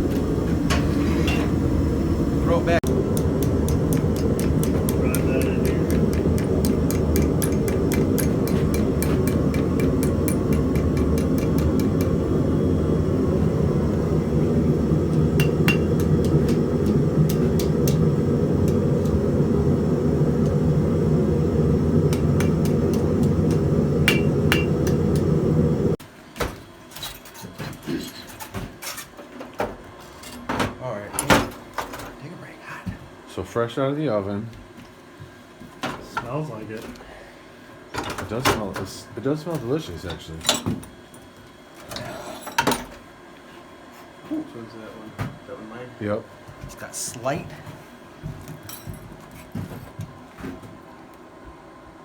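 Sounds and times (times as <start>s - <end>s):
forge roar: 0.0s - 26.0s
hammer striking steel on anvil: 3.4s - 12.1s, 15.4s - 16.3s, 24.0s - 25.0s.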